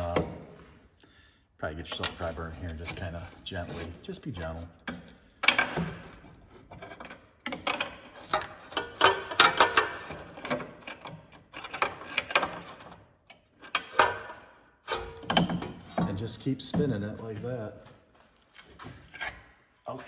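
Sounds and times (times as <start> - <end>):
pry bar clicking and scraping metal: 2.0 - 16.2.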